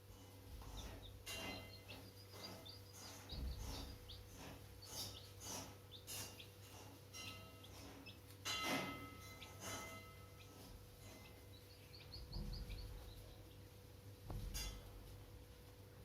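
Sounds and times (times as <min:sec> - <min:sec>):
chicks peeping: 0:00.0 - 0:15.8
steady low hum: 0:00.0 - 0:16.0
dull bump: 0:03.2 - 0:04.5, 0:12.2 - 0:13.3, 0:14.2 - 0:14.8.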